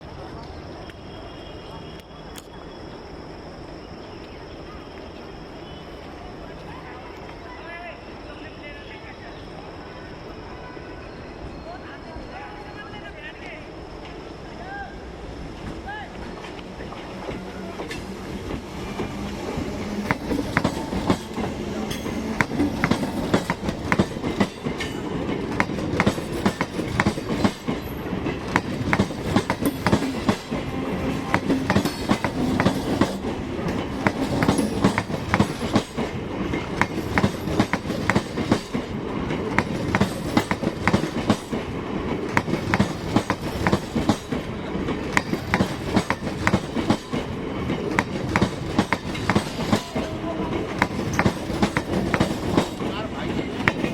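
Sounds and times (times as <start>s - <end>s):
train rumble: 12.6s - 53.9s
train wheels clacking over rail joints: 16.3s - 53.9s.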